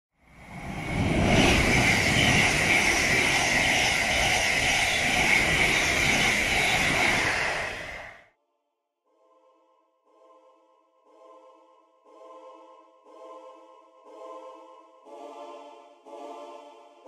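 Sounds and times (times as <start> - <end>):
train passing at speed: 0.2 - 8.3
high whine: 0.3 - 8.2.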